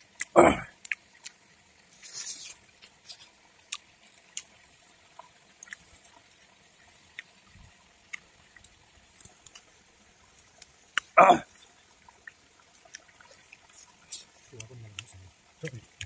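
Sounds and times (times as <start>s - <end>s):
person chewing food: 0.2s - 4.6s, 5.2s - 6.2s, 10.9s - 11.2s, 12.2s - 14.3s.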